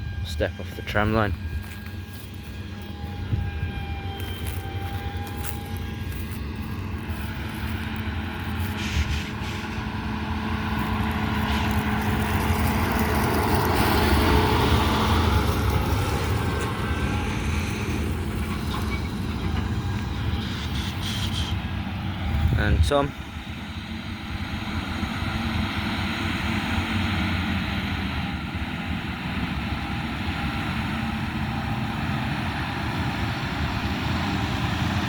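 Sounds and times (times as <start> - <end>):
harvest machinery diesel engine: 0.0 - 35.0.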